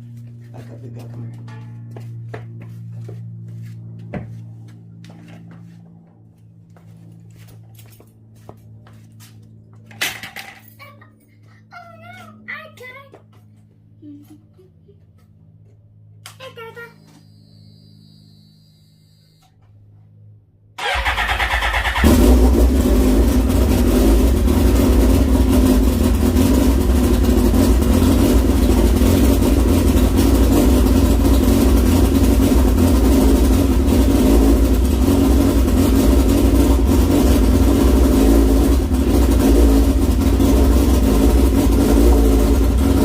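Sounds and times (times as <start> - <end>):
electric starter cranking: 20.8 - 22.4
motorcycle engine idling loudly: 20.8 - 43.0.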